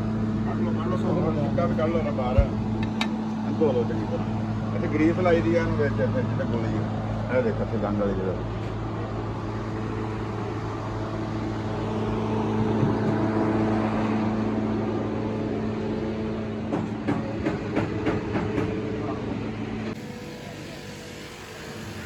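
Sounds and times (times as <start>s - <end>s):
machine humming: 8.4s - 22.0s.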